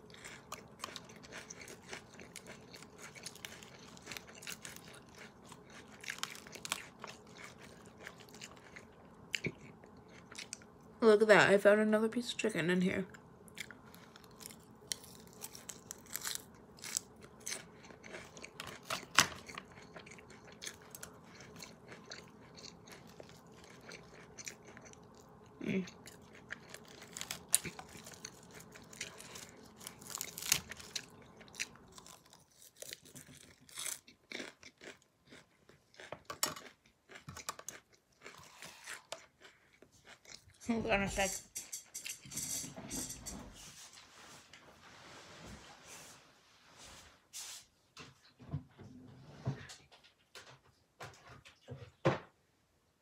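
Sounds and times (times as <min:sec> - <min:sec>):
crunchy lettuce chewing: 0:00.0 - 0:10.6, 0:13.5 - 0:40.6
faint background hum: 0:00.0 - 0:53.0.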